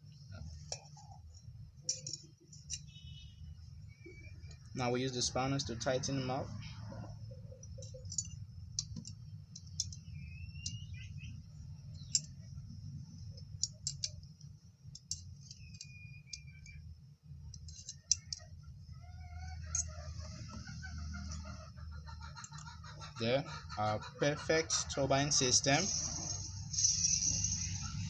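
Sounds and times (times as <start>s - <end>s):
steady low hum: 0.0s - 28.0s
spanners clicking on metal nuts: 1.9s - 3.0s, 7.6s - 10.9s, 11.8s - 12.6s, 13.4s - 16.8s, 17.5s - 18.6s, 19.6s - 20.7s, 22.4s - 22.8s.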